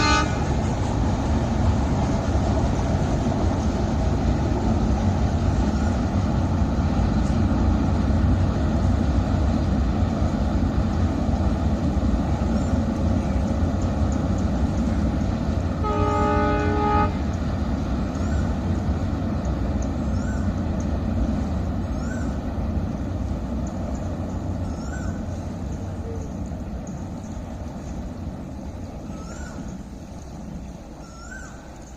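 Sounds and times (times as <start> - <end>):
train horn: 0.0 - 0.7, 15.8 - 17.4
train rumbling over bridge: 0.0 - 31.9.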